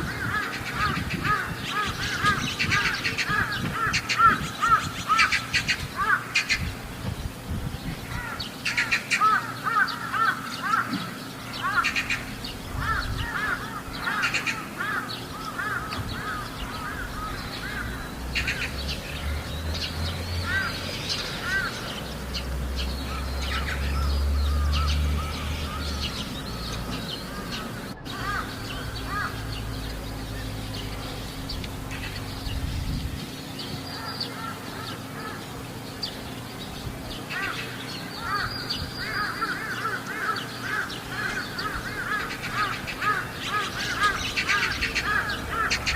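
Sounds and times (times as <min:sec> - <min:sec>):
crows cawing: 0:00.0 - 0:06.6, 0:08.0 - 0:19.5, 0:20.4 - 0:22.1, 0:23.0 - 0:29.6, 0:33.8 - 0:35.6, 0:37.3 - 0:45.9.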